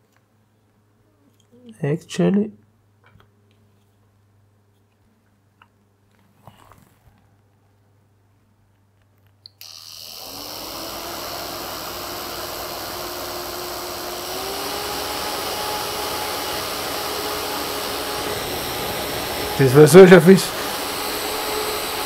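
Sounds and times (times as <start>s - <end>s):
fan motor whine and rushing air: 9.6s - 22.0s.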